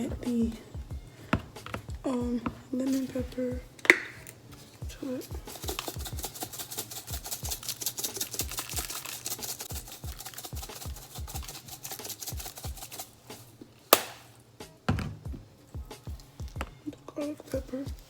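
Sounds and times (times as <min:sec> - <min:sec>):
music with deep thumping beat: 0:00.0 - 0:03.8, 0:04.8 - 0:07.8, 0:09.6 - 0:13.0, 0:14.6 - 0:18.0
seasoning shaker rattling: 0:04.2 - 0:13.6.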